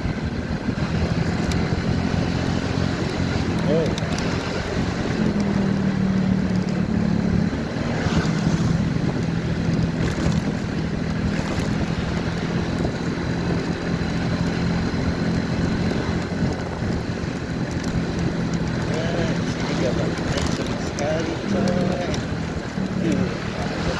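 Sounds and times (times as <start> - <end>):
motorcycle engine cruising: 0.0 - 23.9
wind rushing over microphone: 0.0 - 23.9.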